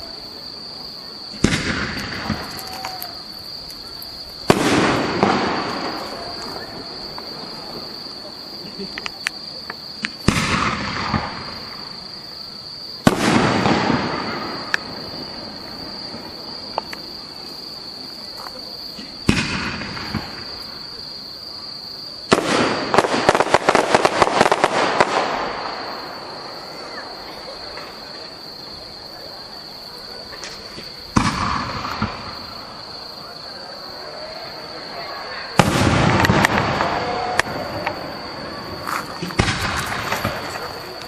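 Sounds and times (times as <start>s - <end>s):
crackling firework volley: 0.0s - 41.0s
firework booms: 1.3s - 12.1s, 13.0s - 18.1s, 18.9s - 21.0s, 22.2s - 29.2s, 30.0s - 33.2s, 34.0s - 41.0s.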